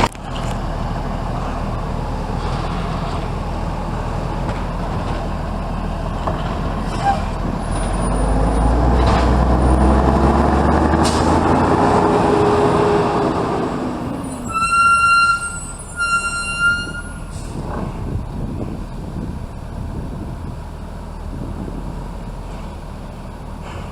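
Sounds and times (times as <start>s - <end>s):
garbage truck engine revving: 0.0s - 16.4s.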